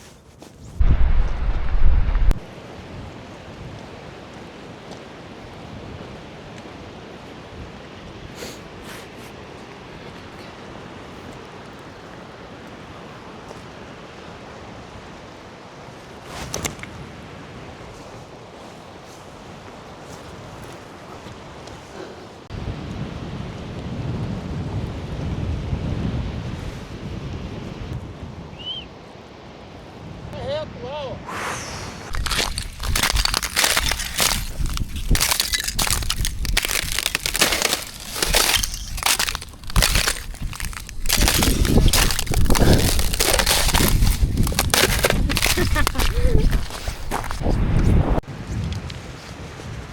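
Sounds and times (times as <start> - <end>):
footsteps crunching on frozen snow: 32.0 - 49.9
short crackle: 32.1 - 47.4.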